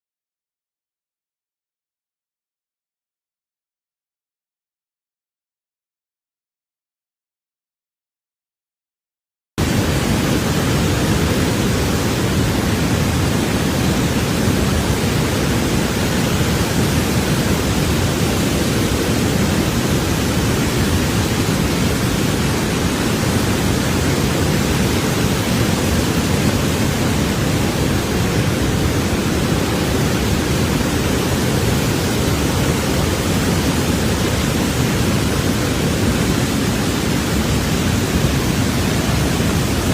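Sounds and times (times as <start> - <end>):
floodwater rushing: 9.6 - 39.9.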